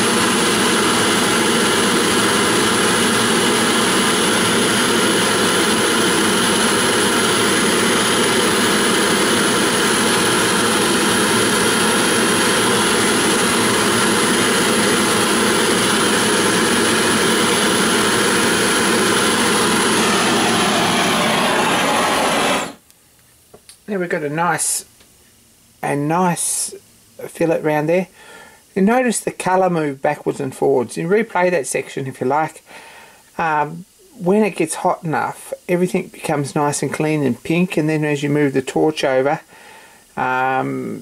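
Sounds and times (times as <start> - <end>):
gas torch flame roaring: 0.0 - 22.9.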